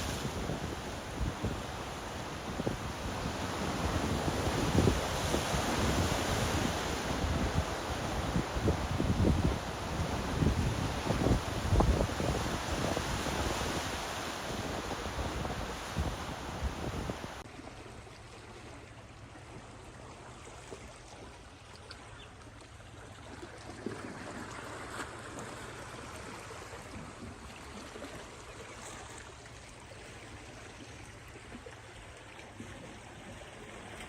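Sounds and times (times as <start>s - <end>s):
wind on microphone: 0.0s - 17.4s
waves: 0.0s - 34.0s
gently moving water: 17.1s - 34.0s
small water splashes: 17.3s - 34.0s.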